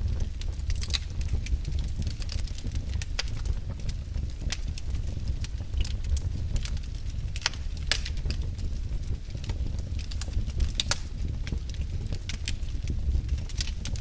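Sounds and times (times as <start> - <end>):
wood fire crackling and snapping: 0.0 - 14.0.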